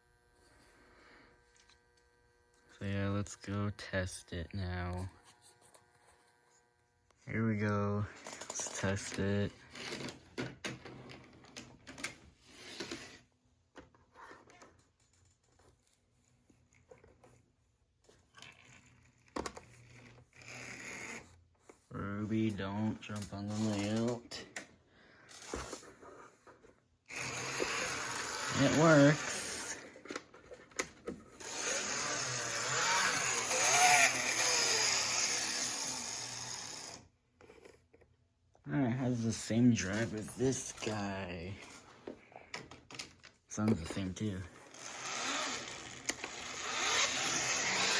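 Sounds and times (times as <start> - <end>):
model trolley motor whirring: 18.4 - 21.3, 23.1 - 24.4, 25.3 - 26.2, 27.1 - 37.7, 44.2 - 47.9.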